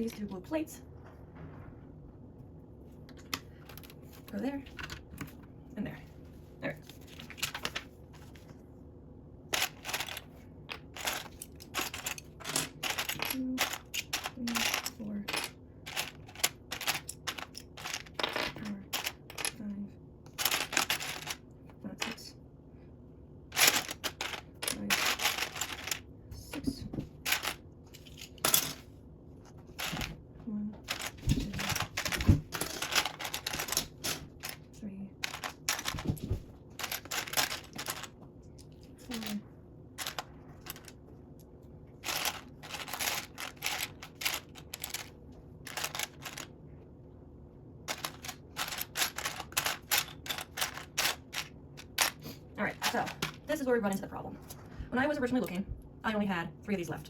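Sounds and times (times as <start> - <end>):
plastic bricks clicking and rattling: 9.5 - 19.6, 20.3 - 22.2, 23.5 - 28.8, 29.7 - 30.1, 30.8 - 39.4, 40.0 - 41.0, 42.0 - 46.5, 47.9 - 53.6.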